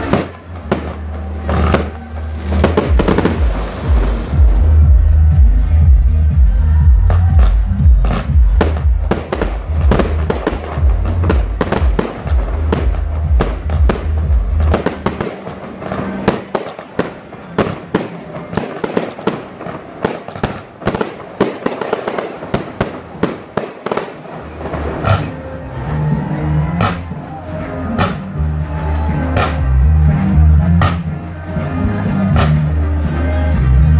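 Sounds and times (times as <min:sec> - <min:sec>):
fireworks bangs and crackling: 0:00.0 - 0:05.1, 0:07.0 - 0:25.6
loud bass-heavy music: 0:00.0 - 0:33.9.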